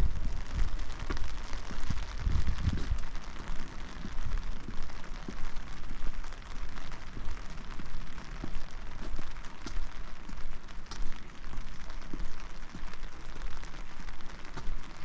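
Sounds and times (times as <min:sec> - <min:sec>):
low thuds and rumble: 0:00.0 - 0:03.1
steady rain patter: 0:00.0 - 0:15.0.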